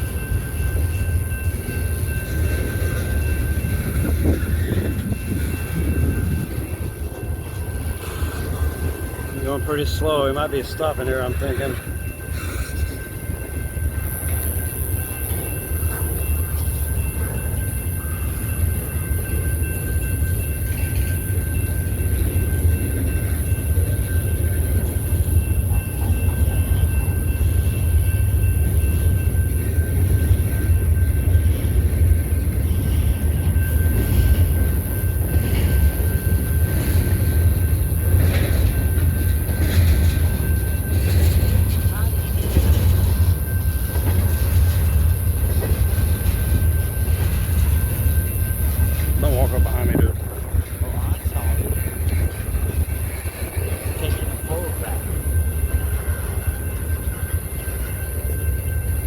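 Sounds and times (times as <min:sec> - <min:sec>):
train rumbling past: 0:00.0 - 0:59.0
faint high whine: 0:32.7 - 0:59.0.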